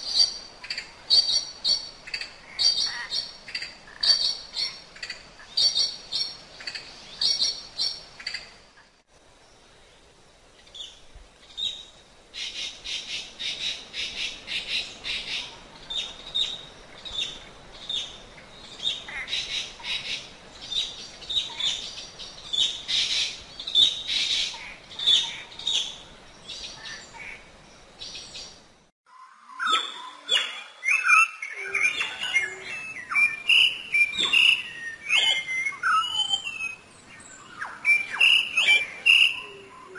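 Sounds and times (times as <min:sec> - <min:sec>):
whistled bird calls: 0:29.1 - 0:39.9.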